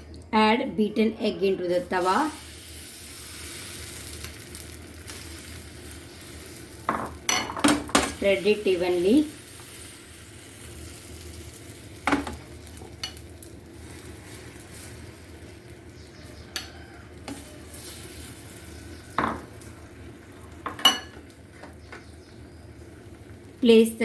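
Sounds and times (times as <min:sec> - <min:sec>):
egg sizzling on a pan: 0:01.8 - 0:24.0.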